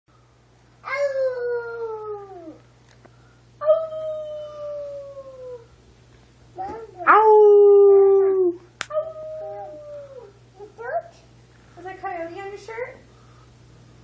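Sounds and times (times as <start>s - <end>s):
long high-pitched howls: 3.6s - 5.7s, 7.0s - 10.4s.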